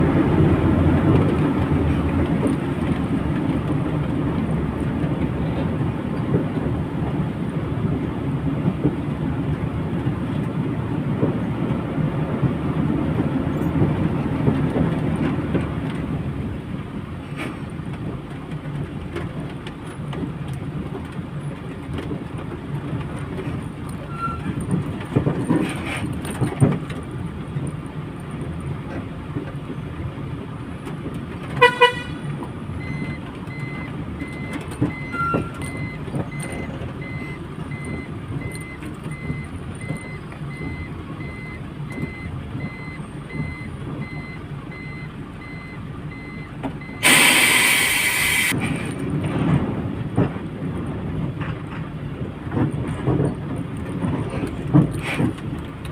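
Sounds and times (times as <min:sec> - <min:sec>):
lorry engine and road drone: 0:00.0 - 0:55.9
loud air hiss: 0:47.0 - 0:48.6.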